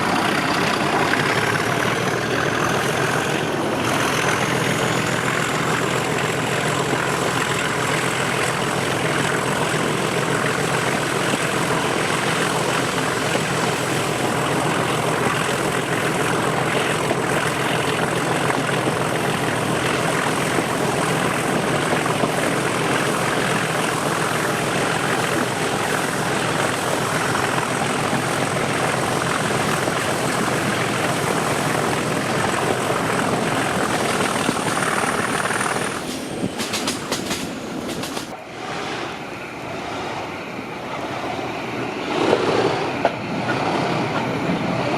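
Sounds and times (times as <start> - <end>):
diesel locomotive engine running: 0.0 - 44.9
wheel and rail noise: 0.0 - 44.9.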